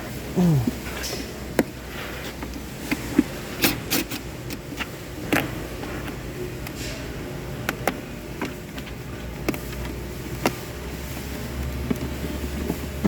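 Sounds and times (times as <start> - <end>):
low steady hum: 0.0 - 1.0.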